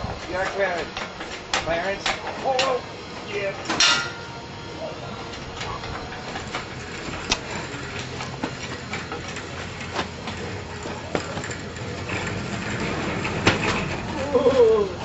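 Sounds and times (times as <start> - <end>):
steady background hum: 0.0 - 15.0
metallic clanks and knocks: 3.6 - 4.3.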